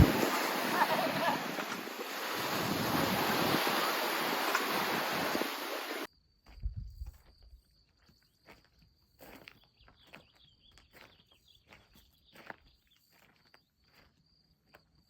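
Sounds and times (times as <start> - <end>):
wind on microphone: 0.0 - 7.1.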